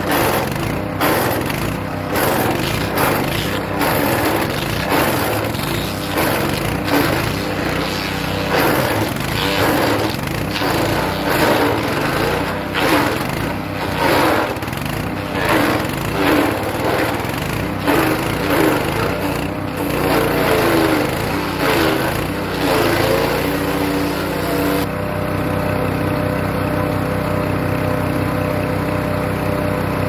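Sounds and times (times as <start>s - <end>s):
wood chipper running: 0.0s - 30.0s
branches crunching in chipper: 1.2s - 24.8s.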